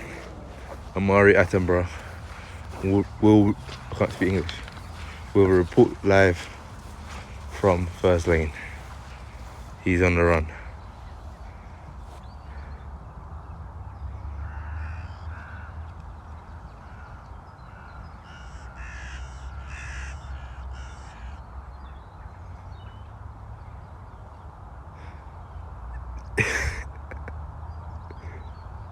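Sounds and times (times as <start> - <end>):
crows cawing: 0.0 - 12.8, 14.3 - 21.7, 25.0 - 27.3.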